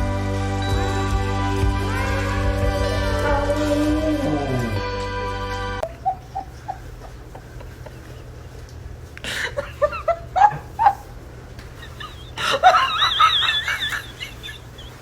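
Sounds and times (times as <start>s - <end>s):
person laughing: 5.8s - 8.6s, 9.2s - 15.0s.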